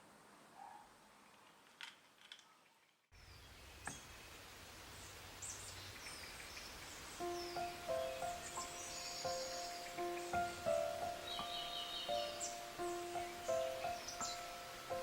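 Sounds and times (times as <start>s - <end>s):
bird chirps: 5.4s - 15.0s
soft music: 7.2s - 15.0s.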